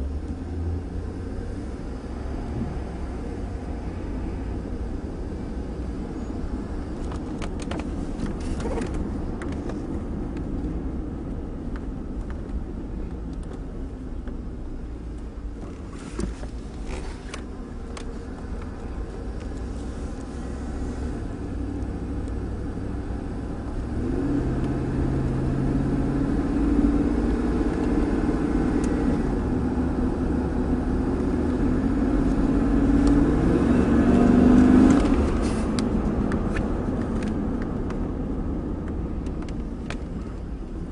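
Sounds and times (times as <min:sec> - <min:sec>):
road rumble: 0:00.0 - 0:40.9
truck engine accelerating: 0:18.6 - 0:39.7.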